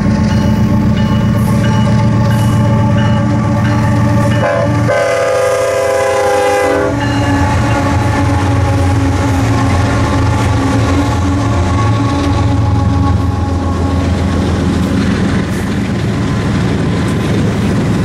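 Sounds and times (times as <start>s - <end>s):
diesel locomotive engines droning: 0.0s - 18.0s
train horn blast: 3.5s - 14.6s.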